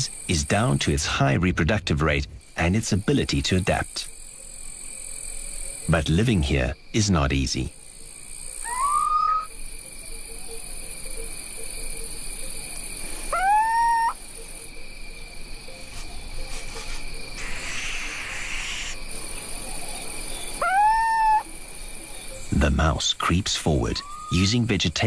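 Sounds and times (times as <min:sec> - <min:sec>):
crickets chirping: 0:00.0 - 0:25.0
owl calling: 0:08.5 - 0:11.3, 0:13.0 - 0:14.7, 0:15.8 - 0:22.6, 0:23.8 - 0:24.6
brief rustle: 0:15.8 - 0:17.1.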